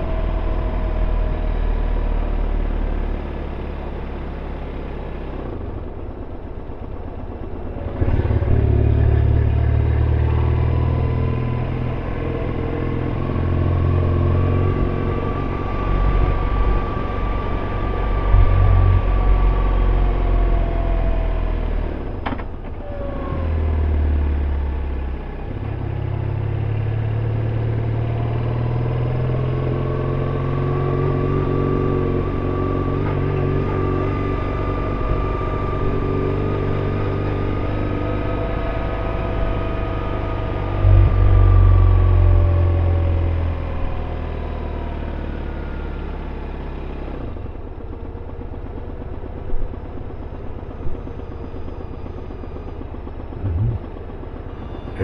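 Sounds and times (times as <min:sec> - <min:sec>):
motorcycle engine running: 0:00.0 - 0:22.8, 0:25.3 - 0:55.0.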